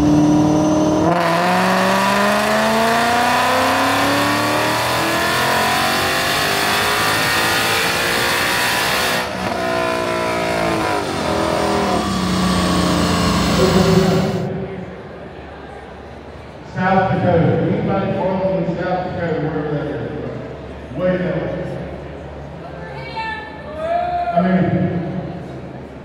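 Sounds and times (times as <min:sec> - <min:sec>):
car engine revving: 0:00.0 - 0:15.1.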